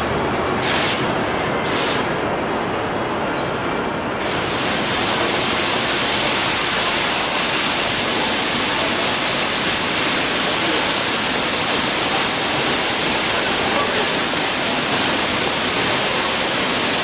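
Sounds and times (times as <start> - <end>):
falling water hiss: 4.2 - 17.0.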